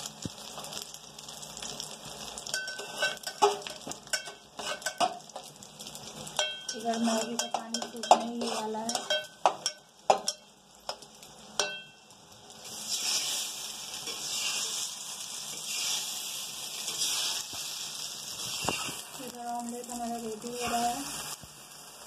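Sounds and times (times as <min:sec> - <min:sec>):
food frying sizzle: 0:00.0 - 0:22.0
spoon clinking against metal pot: 0:02.5 - 0:05.2, 0:06.3 - 0:11.0, 0:11.6 - 0:12.0.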